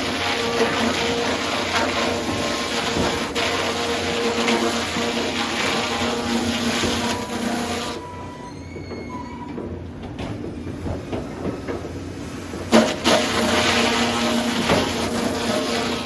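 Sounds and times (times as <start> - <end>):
sawmill machinery humming: 0.0 - 9.1, 10.5 - 16.0
high squeal: 7.1 - 9.6.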